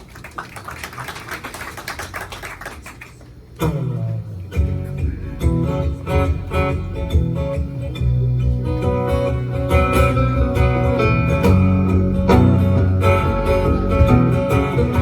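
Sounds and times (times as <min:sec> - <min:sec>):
guitar and bass notes: 0:03.6 - 0:15.0.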